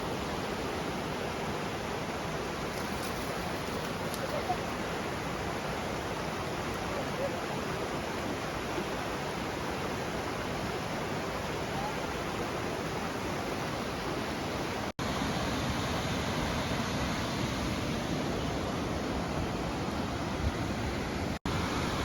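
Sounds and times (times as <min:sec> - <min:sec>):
river rapids rushing: 0:00.0 - 0:22.0.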